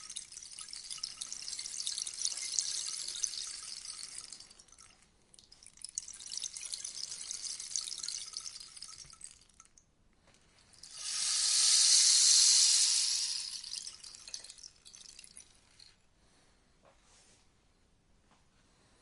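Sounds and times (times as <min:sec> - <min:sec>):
rainstick beads trickling: 0:00.0 - 0:09.8, 0:10.6 - 0:15.9.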